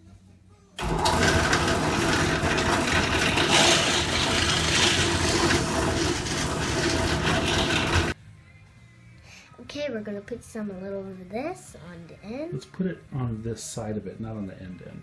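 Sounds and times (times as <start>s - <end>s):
power tool cutting wood: 0.8s - 8.2s.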